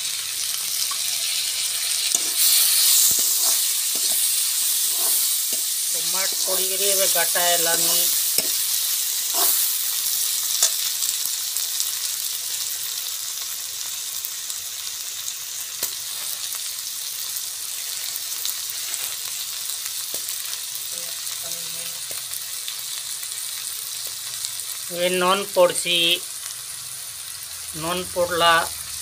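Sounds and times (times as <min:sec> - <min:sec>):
onions sizzling in hot oil: 0:00.0 - 0:29.0.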